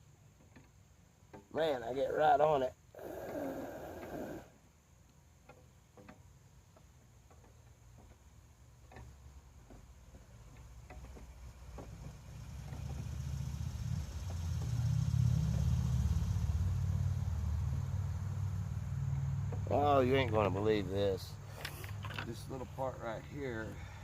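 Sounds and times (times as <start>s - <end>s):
vehicle engine rumble: 6.9s - 24.0s.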